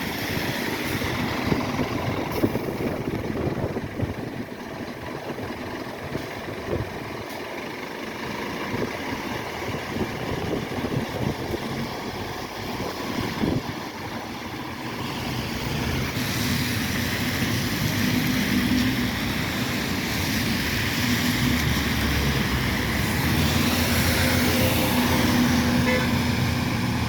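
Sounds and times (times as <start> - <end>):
bus diesel engine humming: 0.0 - 27.0.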